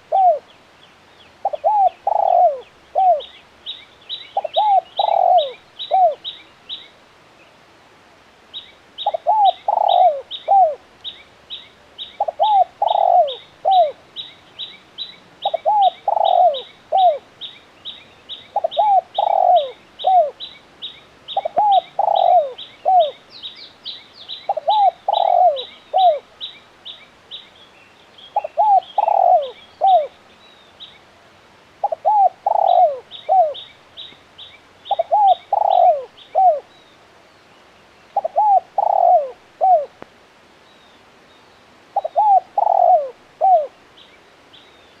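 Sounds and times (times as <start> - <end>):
dove cooing: 0.0 - 0.5, 1.4 - 3.4, 4.4 - 6.3, 9.0 - 10.8, 12.2 - 14.0, 15.4 - 17.3, 18.5 - 20.4, 21.3 - 23.2, 24.5 - 26.3, 28.4 - 30.2, 31.8 - 33.6, 34.9 - 36.7, 38.2 - 40.0, 42.0 - 43.8
small bird chirping: 31.8 - 39.2.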